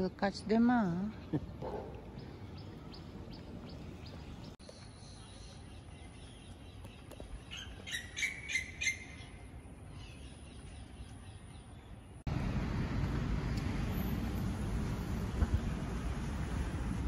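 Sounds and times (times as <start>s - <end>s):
road traffic rushing: 12.2s - 17.0s.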